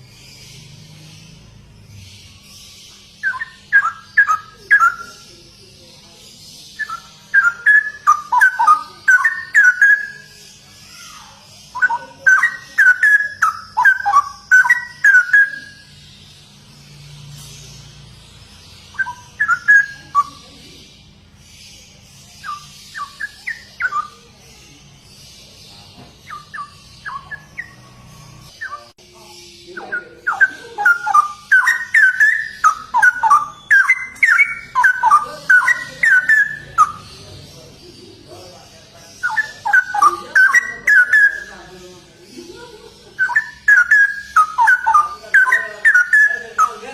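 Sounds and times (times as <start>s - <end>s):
bird singing liquid warbling phrases: 0.5s - 5.8s, 6.6s - 17.2s, 18.8s - 21.2s, 22.3s - 25.6s, 26.2s - 46.9s.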